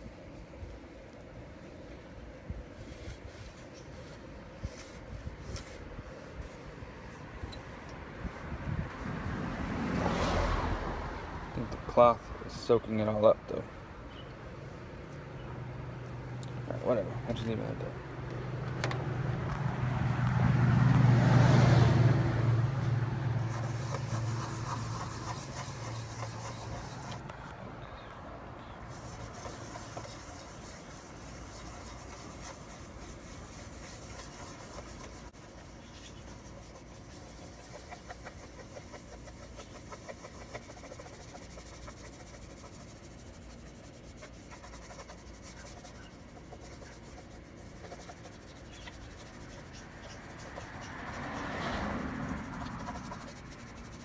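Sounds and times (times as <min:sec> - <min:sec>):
cloth rubbing on plastic: 0:02.6 - 0:07.3, 0:23.3 - 0:27.2, 0:28.9 - 0:54.0.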